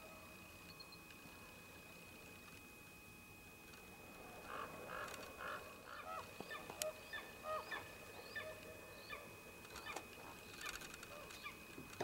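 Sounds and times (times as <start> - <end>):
ravens calling: 4.2 - 11.7.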